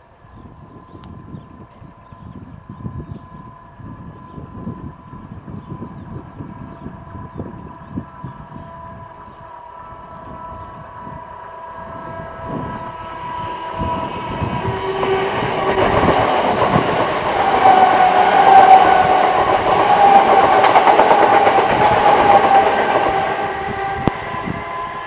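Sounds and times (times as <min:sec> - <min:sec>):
steady train whine: 0:00.0 - 0:25.0
train wheels on rails: 0:09.4 - 0:25.0.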